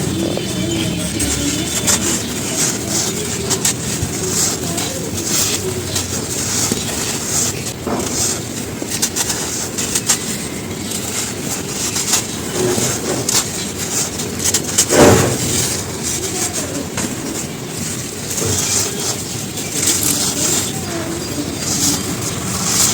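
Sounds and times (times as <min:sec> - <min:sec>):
charcoal ash crunching: 0:00.0 - 0:22.9.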